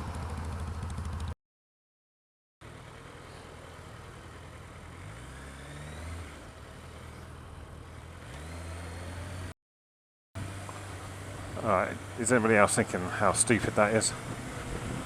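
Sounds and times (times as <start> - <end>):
motorcycle engine pulling away: 0.0 - 1.4, 2.6 - 9.5, 10.4 - 15.0
wind noise on microphone: 14.2 - 15.0.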